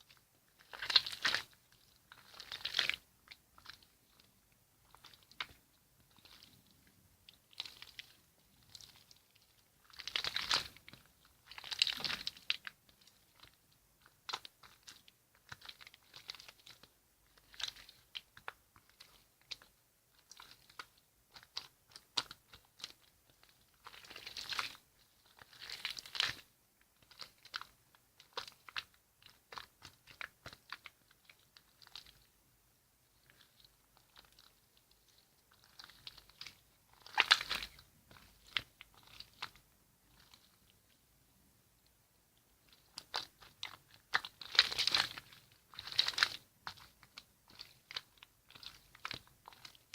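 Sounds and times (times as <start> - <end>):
slime squishing and crackling: 0.0 - 32.4, 33.1 - 41.0, 42.6 - 49.9.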